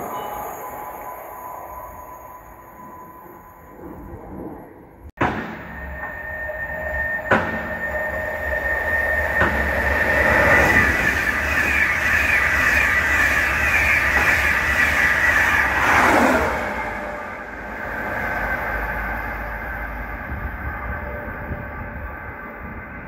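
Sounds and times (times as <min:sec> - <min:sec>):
high whine: 0:00.0 - 0:23.0
train wheels rushing on rail: 0:07.0 - 0:21.8.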